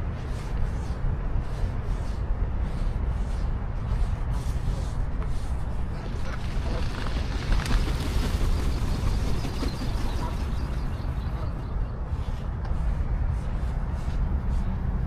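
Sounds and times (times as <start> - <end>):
faint voices: 4.2 - 12.9.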